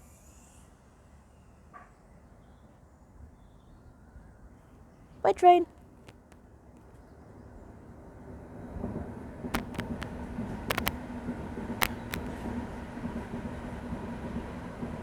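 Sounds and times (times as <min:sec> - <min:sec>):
train running: 0:05.4 - 0:15.0
sharp clicks: 0:09.6 - 0:10.1, 0:10.7 - 0:11.0, 0:11.8 - 0:12.3.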